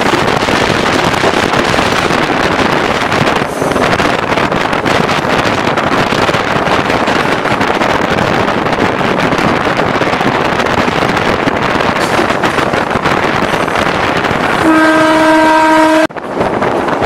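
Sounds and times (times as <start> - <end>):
train wind and running noise: 0.0 - 17.0
train horn blast: 14.6 - 16.2.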